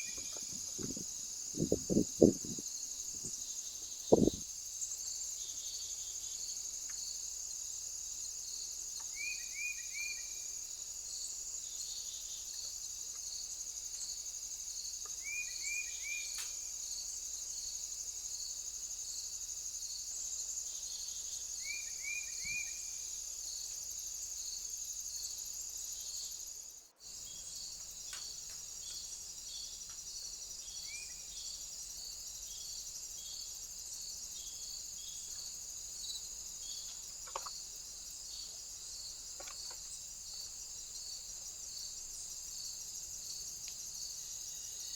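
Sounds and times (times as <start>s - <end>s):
pulsing insect: 0.0s - 8.9s
crickets and insects chorus: 0.0s - 44.9s.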